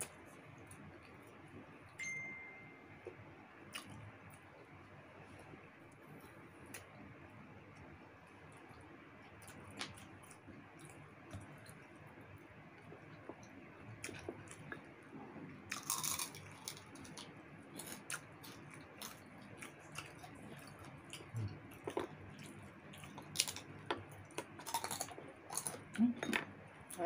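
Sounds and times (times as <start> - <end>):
chewing and crunching crispy skin: 7.7 - 26.0.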